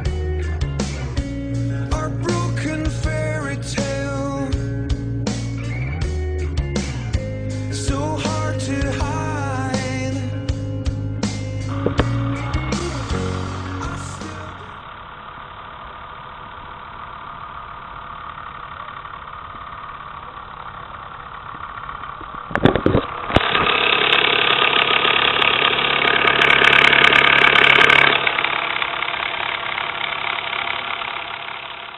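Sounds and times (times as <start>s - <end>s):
toy steam engine chuffing: 14.9s - 31.9s.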